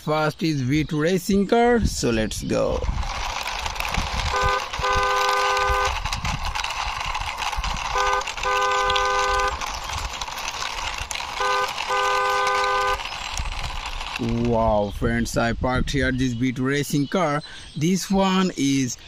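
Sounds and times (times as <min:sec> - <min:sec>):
steady rough noise: 0:01.9 - 0:15.6
two-tone car horn honking: 0:04.3 - 0:06.0, 0:07.9 - 0:09.6, 0:11.4 - 0:13.0.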